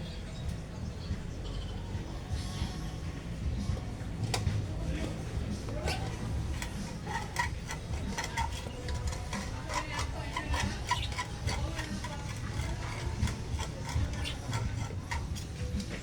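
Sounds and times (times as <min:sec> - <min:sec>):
small tools clicking and tapping: 0:04.2 - 0:16.0.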